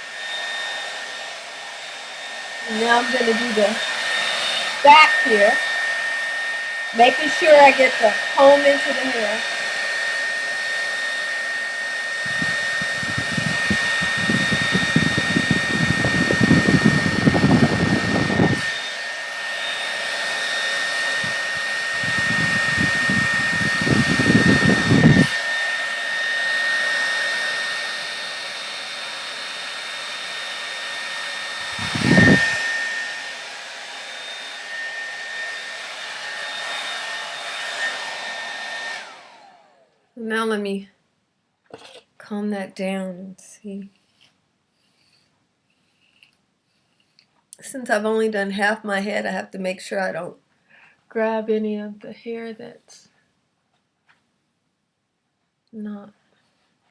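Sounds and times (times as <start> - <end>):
nozzle pulled through hair: 0.0 - 39.4, 42.8 - 49.0
blow dryer running: 0.0 - 40.6.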